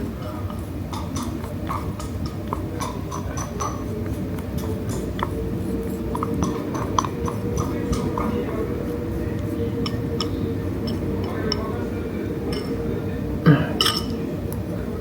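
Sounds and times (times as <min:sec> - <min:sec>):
low background hum: 0:00.0 - 0:15.0
utensil clicking against bowl: 0:00.4 - 0:08.4.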